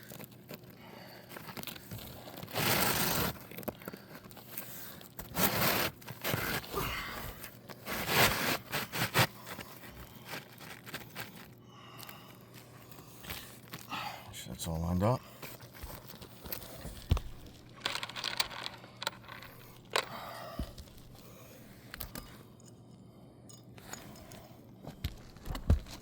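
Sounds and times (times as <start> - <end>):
shingle scraping against shingles: 2.4 - 3.6, 5.2 - 6.7.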